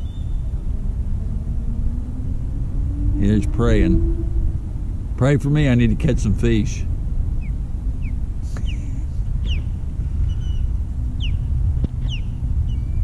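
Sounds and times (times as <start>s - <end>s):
birds whistling falling notes: 0.0s - 4.5s, 7.4s - 13.0s
steady low rumble: 0.0s - 13.0s.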